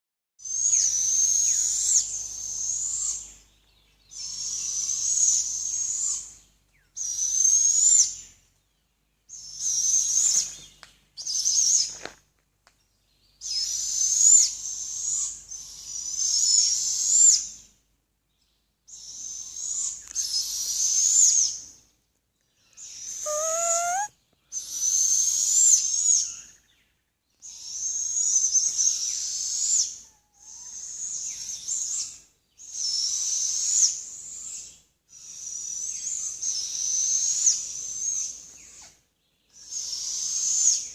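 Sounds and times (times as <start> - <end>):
owl screech calls: 23.2 - 24.1
brief rising whistle: 23.3 - 24.1.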